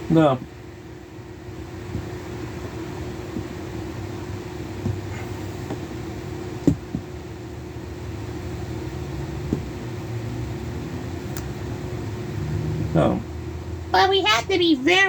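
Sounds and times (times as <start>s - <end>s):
steady background hum: 0.0s - 15.0s
short knocks: 6.6s - 7.1s.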